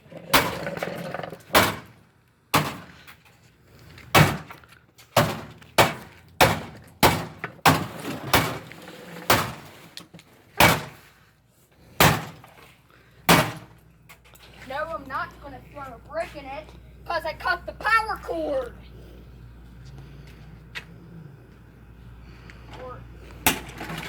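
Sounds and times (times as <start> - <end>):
heavy blows smashing washing machine: 1.5 - 3.0, 4.1 - 9.8, 10.6 - 11.1, 12.0 - 12.7, 13.3 - 13.8, 23.4 - 24.0.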